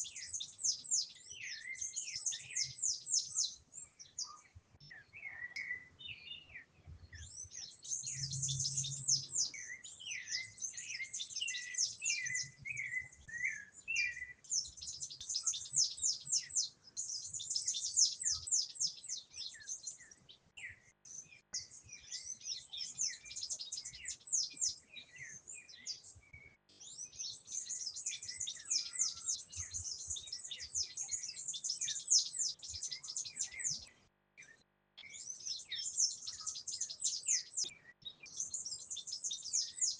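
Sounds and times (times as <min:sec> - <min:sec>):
small birds chirping and twittering: 0:00.0 - 0:39.9
low whistled bird notes: 0:07.2 - 0:19.8.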